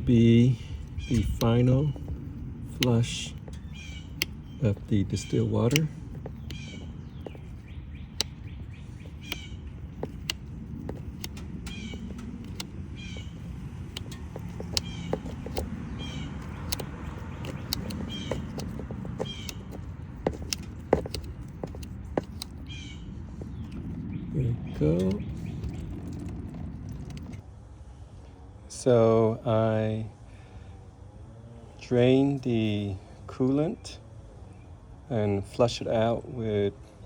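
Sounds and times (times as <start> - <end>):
clicks: 0.0 - 24.1.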